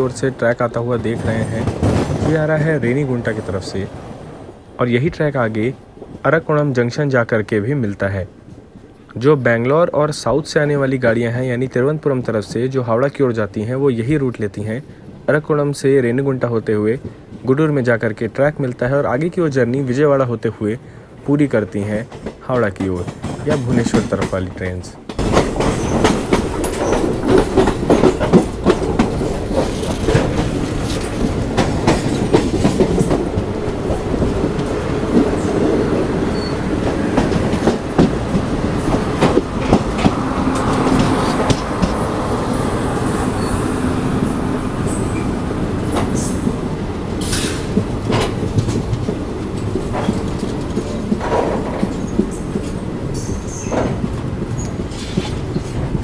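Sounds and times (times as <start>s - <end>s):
train rumble: 0.0s - 56.0s
wheels clickety-clack: 1.0s - 2.6s, 21.8s - 43.5s, 44.2s - 56.0s
high wheel squeals: 35.4s - 36.8s, 40.6s - 46.6s.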